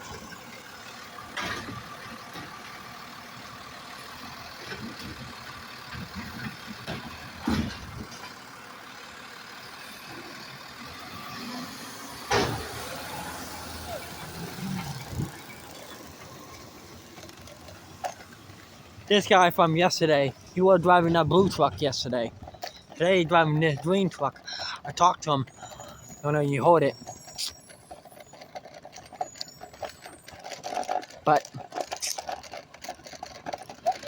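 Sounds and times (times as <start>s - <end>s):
recycling truck running: 0.0s - 34.0s
sharp clunks and knocks: 5.9s - 8.4s.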